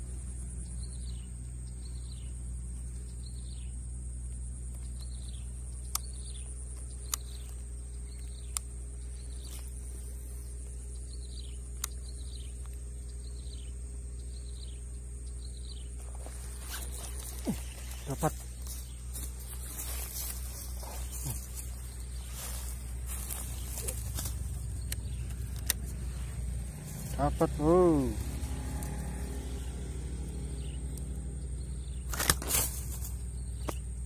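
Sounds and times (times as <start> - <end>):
low rumble: 0.0 - 32.1
high insect buzz: 0.0 - 34.0
sharp clicks: 5.8 - 8.8, 11.5 - 12.9, 23.3 - 26.1.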